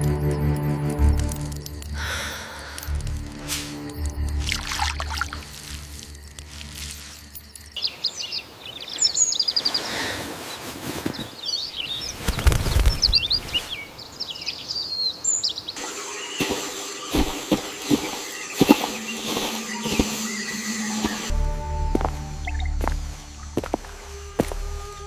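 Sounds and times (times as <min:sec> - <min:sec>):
birds chirping: 0:00.0 - 0:25.0
steady hiss: 0:15.8 - 0:21.4.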